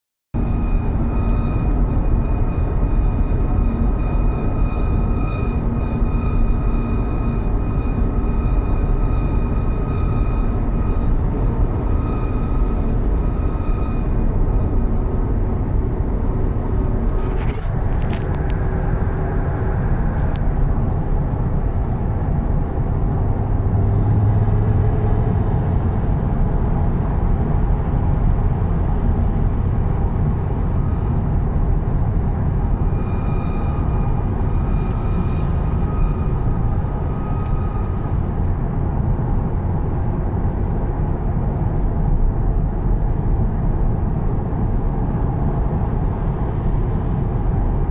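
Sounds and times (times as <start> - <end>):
car road rumble: 0.3 - 47.9
high-pitched wheel screech: 0.4 - 21.9, 32.7 - 38.6.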